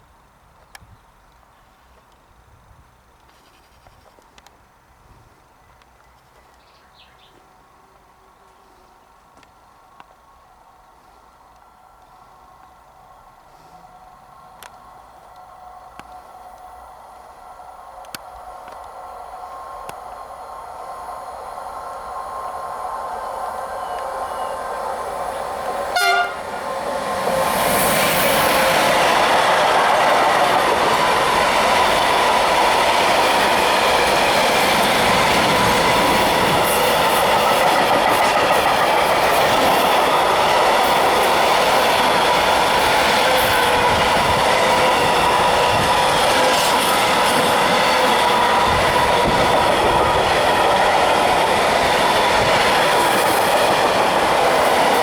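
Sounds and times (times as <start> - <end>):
freight train rumbling past: 10.3 - 55.0
locomotive horn blast: 23.8 - 29.0.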